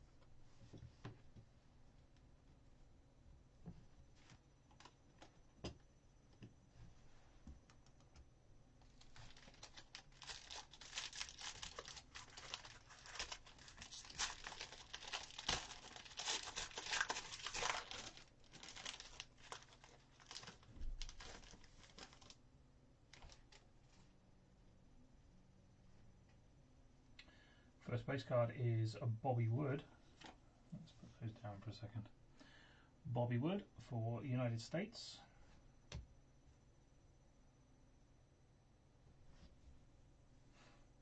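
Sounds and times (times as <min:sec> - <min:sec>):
foil pack crackling and tearing: 0:09.0 - 0:22.4.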